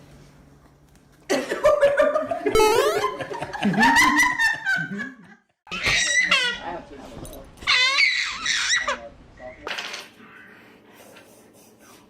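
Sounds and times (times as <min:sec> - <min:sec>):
person laughing and squealing: 0:02.6 - 0:04.5.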